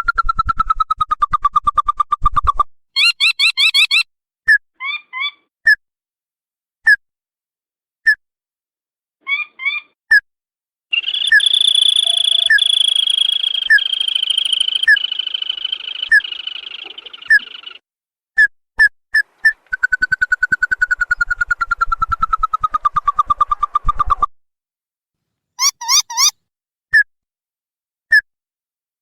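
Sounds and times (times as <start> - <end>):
bird sharp whistled notes: 3.0 - 4.0, 11.0 - 17.8
bird buzzing trill: 11.0 - 17.8.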